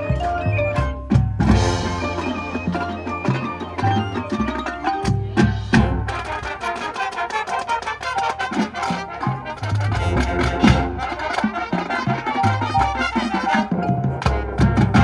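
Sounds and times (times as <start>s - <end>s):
moving bass line: 0.0s - 6.3s
drums and percussion: 0.0s - 15.0s
marching band brass: 0.0s - 15.0s.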